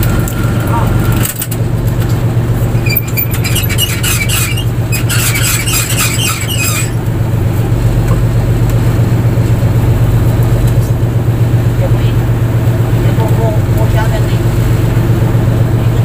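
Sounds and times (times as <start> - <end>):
boat engine running: 0.0 - 16.0
squeaky high-pitched clicks: 2.8 - 7.0.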